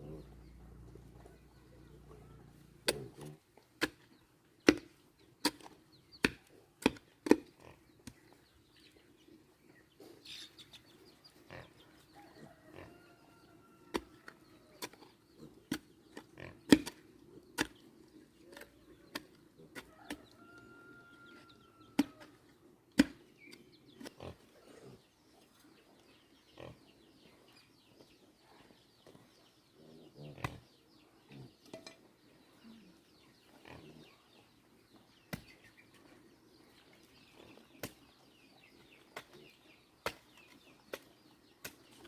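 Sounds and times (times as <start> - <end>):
farm animal calls: 0.0 - 3.5, 7.6 - 22.7.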